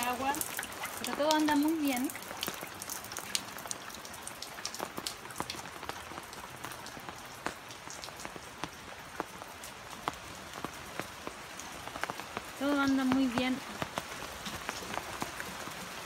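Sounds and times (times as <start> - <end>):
heavy rain falling: 0.0 - 16.0
raindrops ticking close by: 0.0 - 16.0.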